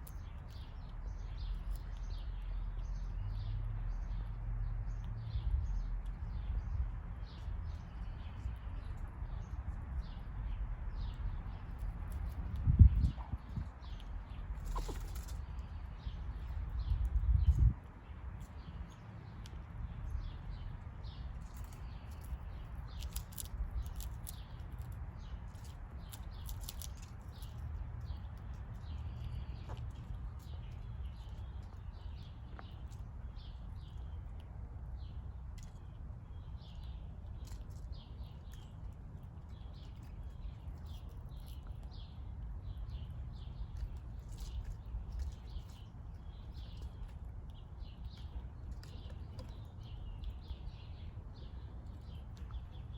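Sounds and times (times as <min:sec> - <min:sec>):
songbirds chirping: 0:00.0 - 0:52.9
steady low rumble: 0:00.0 - 0:52.9.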